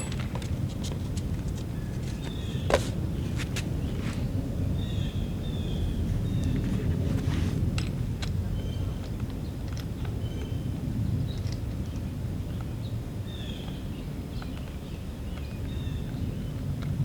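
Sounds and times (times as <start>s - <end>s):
small birds chirping: 1.7s - 7.1s.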